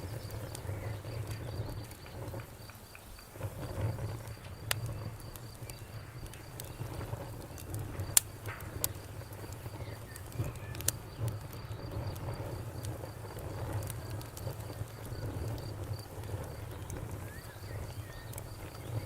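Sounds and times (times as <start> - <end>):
campfire crackling and popping: 0.0 - 19.0
cricket chirping: 0.0 - 19.0.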